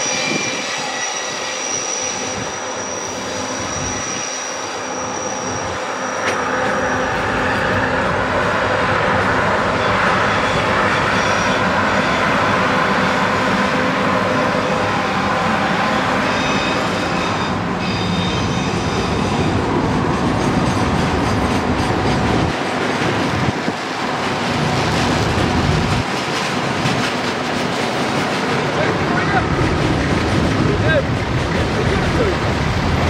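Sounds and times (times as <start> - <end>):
high steady wheel squeal: 0.0 - 8.2, 9.7 - 19.6
freight train clattering over rails: 6.2 - 33.0.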